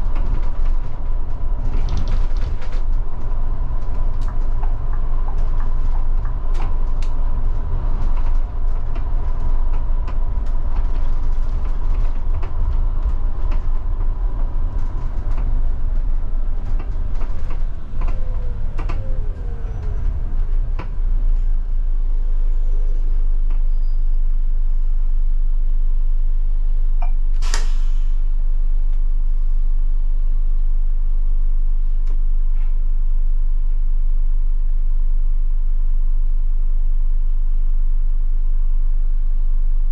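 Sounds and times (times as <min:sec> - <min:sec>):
bus body creaks and rattles: 0:00.0 - 0:24.3, 0:26.9 - 0:27.9
engine whine: 0:00.0 - 0:27.2
bus diesel engine running: 0:00.0 - 0:28.5.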